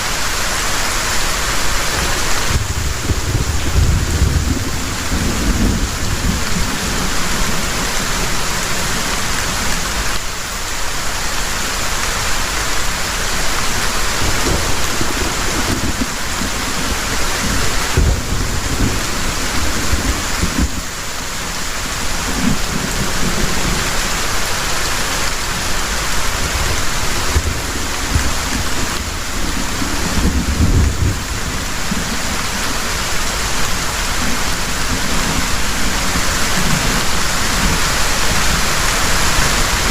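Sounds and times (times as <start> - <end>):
heavy rain pouring: 0.0 - 39.9
thunder rumbling: 1.5 - 10.0, 14.0 - 39.9.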